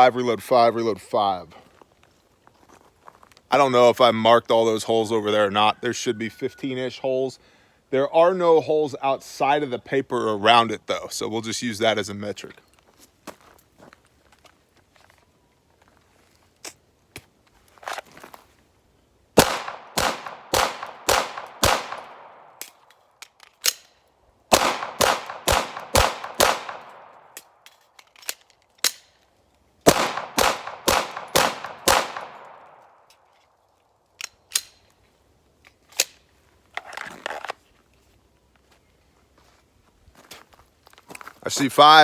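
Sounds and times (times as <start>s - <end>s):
pistol shots: 19.4s - 22.6s, 24.5s - 27.3s, 29.9s - 32.8s
magazine clicks: 19.4s - 33.3s, 34.1s - 35.0s, 35.6s - 36.3s.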